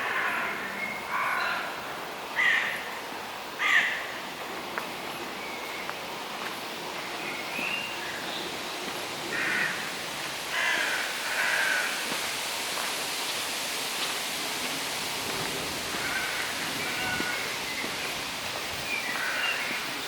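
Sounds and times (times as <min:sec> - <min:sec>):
crows cawing: 0:00.0 - 0:02.9, 0:03.6 - 0:04.2, 0:09.3 - 0:09.9, 0:10.5 - 0:12.2, 0:15.9 - 0:17.4, 0:19.1 - 0:19.8
steady background hiss: 0:00.0 - 0:20.0.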